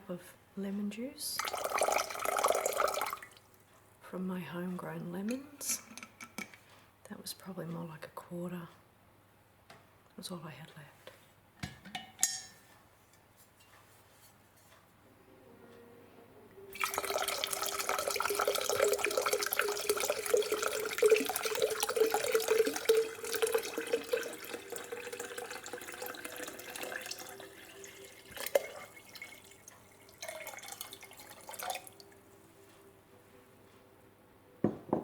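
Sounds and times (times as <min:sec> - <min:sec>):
tap water pouring into a jug: 0:01.4 - 0:03.4, 0:16.7 - 0:32.1
knock: 0:34.6 - 0:35.0.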